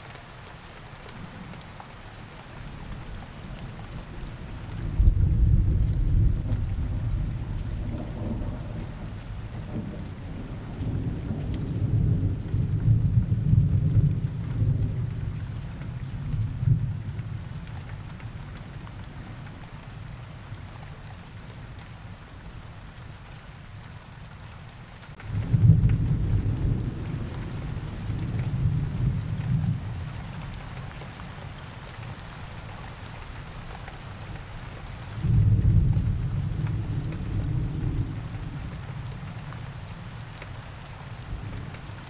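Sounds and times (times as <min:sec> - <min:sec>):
steady rain: 0:00.0 - 0:42.0
low rolls of thunder: 0:03.0 - 0:18.1, 0:25.2 - 0:30.5, 0:35.2 - 0:40.2, 0:41.2 - 0:42.0.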